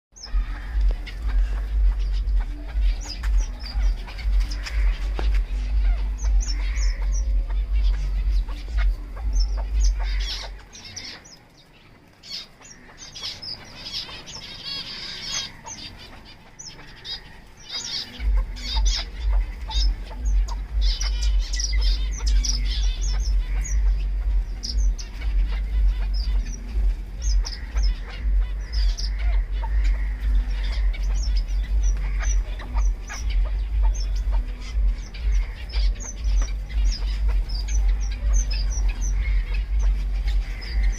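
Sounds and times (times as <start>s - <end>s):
low rumble: 0.1s - 10.8s, 18.2s - 40.9s
partridge chirping: 0.1s - 40.9s.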